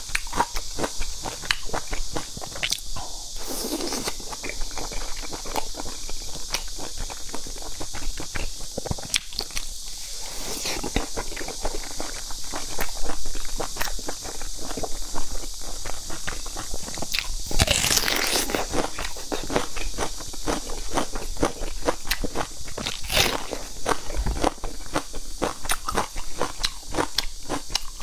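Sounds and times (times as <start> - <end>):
person chewing dumplings: 0.0 - 28.0
wet mouth clicks: 2.5 - 4.5.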